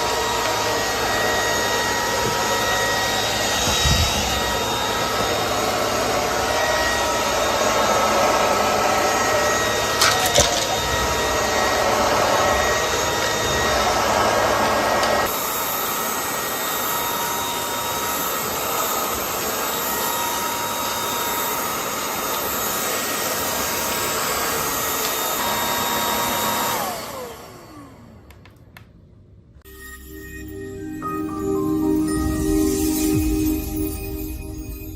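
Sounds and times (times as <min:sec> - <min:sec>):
motor whining down: 0:00.0 - 0:15.3
vacuum motor running: 0:00.0 - 0:28.4.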